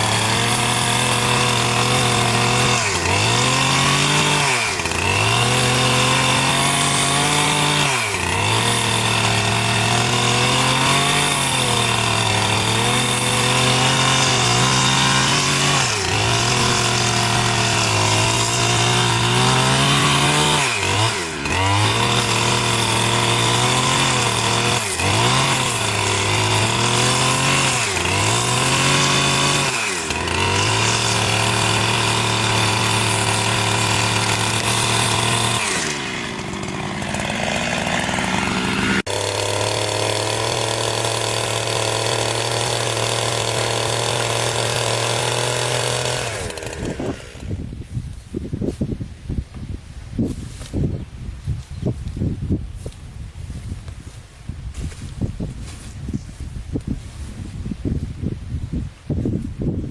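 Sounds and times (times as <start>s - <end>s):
chainsaw cutting timber: 0.0s - 49.0s, 54.8s - 58.3s.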